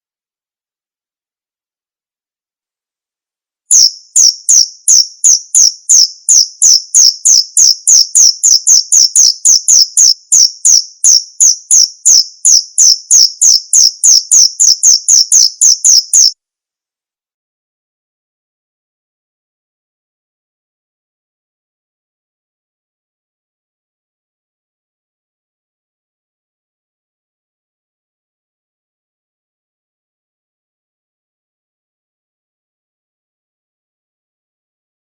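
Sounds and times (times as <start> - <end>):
cricket chirping: 3.7 - 16.4.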